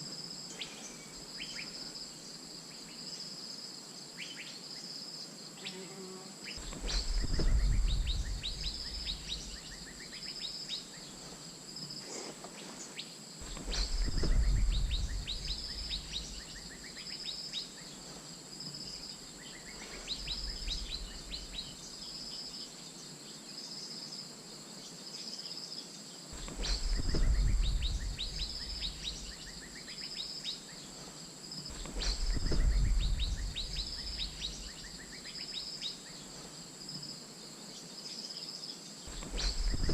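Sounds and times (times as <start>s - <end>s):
insects trilling: 0.0s - 39.9s
low rumble: 6.6s - 9.8s, 13.5s - 16.7s, 20.1s - 21.7s, 26.4s - 29.5s, 31.7s - 34.8s.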